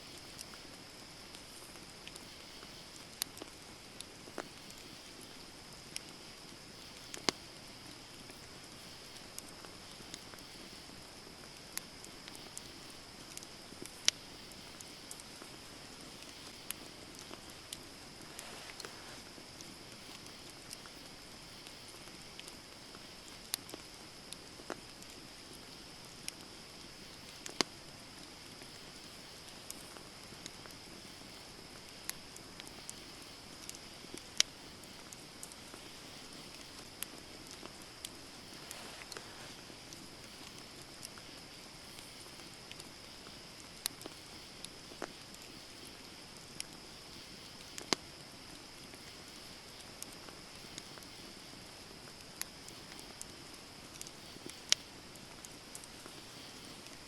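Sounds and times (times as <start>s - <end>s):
campfire hissing: 0.0s - 57.0s
fire crackles and pops: 0.0s - 57.0s.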